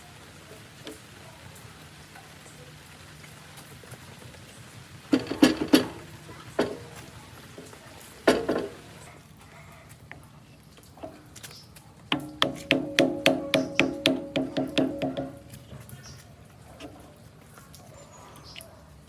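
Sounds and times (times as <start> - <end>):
sharp knocks: 5.1 - 9.0, 12.1 - 15.9.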